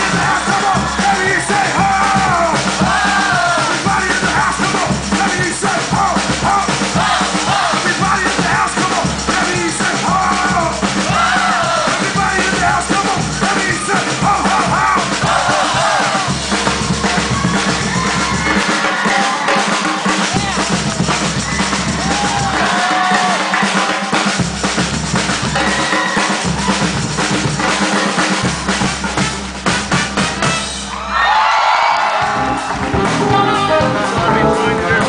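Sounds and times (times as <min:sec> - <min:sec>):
samba drums playing: 0:00.0 - 0:35.0
person singing: 0:32.9 - 0:35.0.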